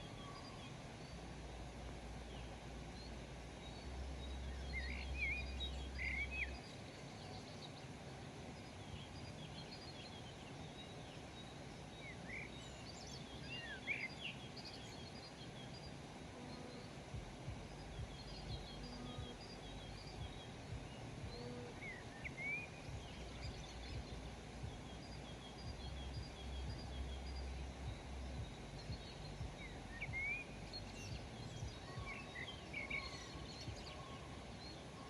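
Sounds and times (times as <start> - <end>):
birds chirping: 0.0 - 35.0
steady background hiss: 0.0 - 35.0
low hum: 14.8 - 35.0.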